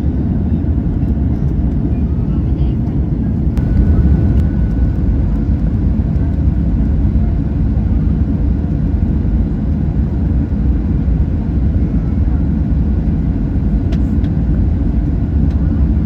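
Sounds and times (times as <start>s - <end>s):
jet engines rumbling in cabin: 0.0s - 16.0s
faint steady whine: 3.5s - 6.1s.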